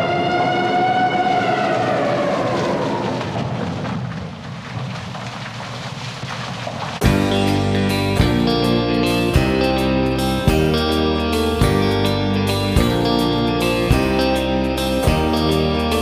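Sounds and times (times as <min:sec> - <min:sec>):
rumbling noise: 0:00.0 - 0:10.8
plucked guitar music: 0:07.0 - 0:16.0.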